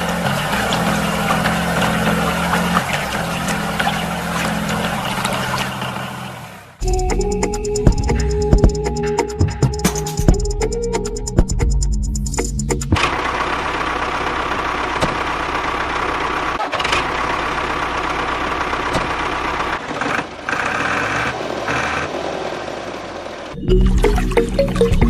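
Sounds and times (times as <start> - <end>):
small engine running: 0.0 - 7.1, 13.0 - 23.6.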